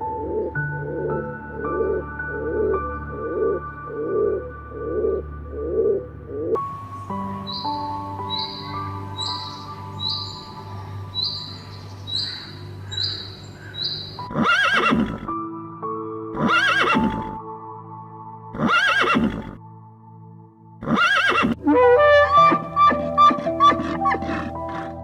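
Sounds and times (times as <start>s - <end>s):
background music: 0.0s - 25.0s
wavering animal calls: 20.9s - 25.0s.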